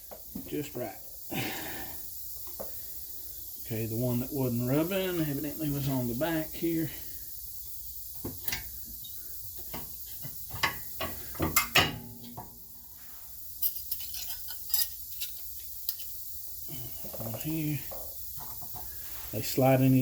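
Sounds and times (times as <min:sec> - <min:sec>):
metal brake parts clinking: 0:13.6 - 0:16.2.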